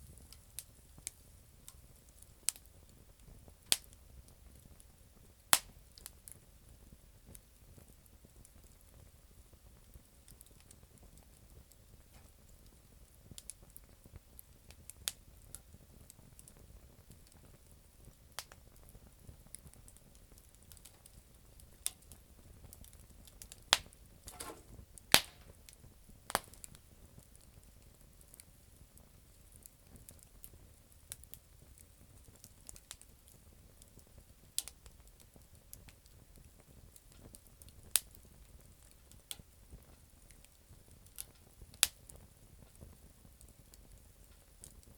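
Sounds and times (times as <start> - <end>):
campfire crackles and pops: 0.0 - 44.9
short hiss: 24.3 - 25.5.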